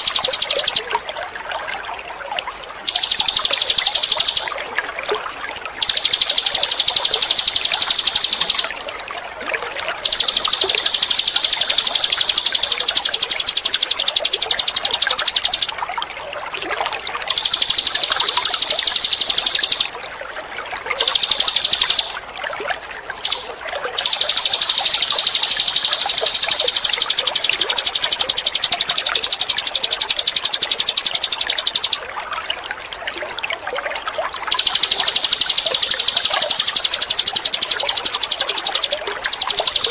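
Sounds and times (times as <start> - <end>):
bird buzzing trills: 0.0 - 1.0, 2.9 - 4.6, 5.8 - 8.8, 10.0 - 15.7, 17.3 - 20.0, 21.0 - 22.2, 23.2 - 32.0, 34.5 - 39.9
trickling water: 0.0 - 39.9.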